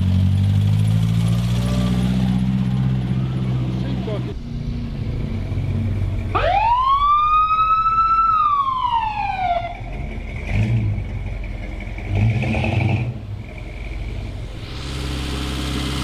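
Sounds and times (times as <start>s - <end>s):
car engine rumbling: 0.0s - 16.0s
high whine: 14.1s - 16.0s.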